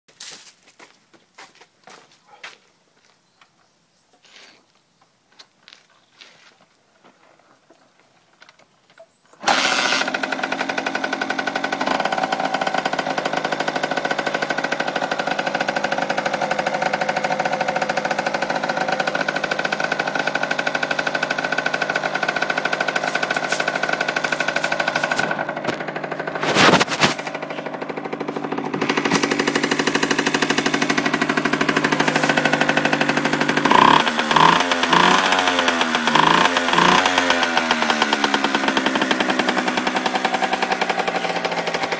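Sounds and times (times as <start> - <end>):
two-stroke engine idling and revving: 9.4 - 41.9.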